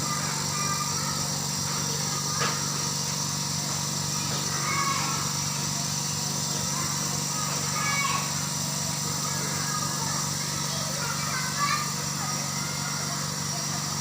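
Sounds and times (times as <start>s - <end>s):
compressor running: 0.0s - 14.0s.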